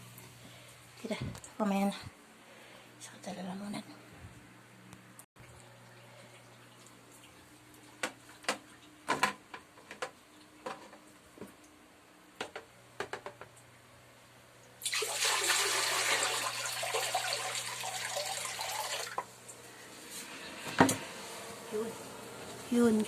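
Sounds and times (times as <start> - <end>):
water rushing into toilet bowl: 14.8 - 19.3.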